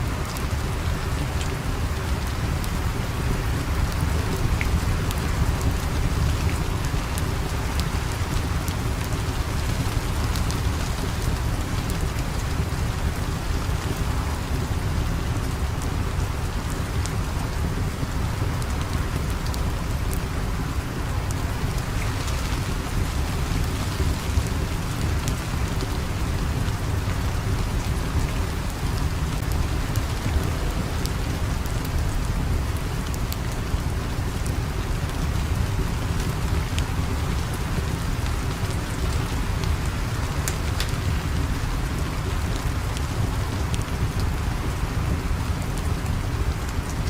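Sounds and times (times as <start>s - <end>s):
steady rain falling: 0.0s - 47.0s.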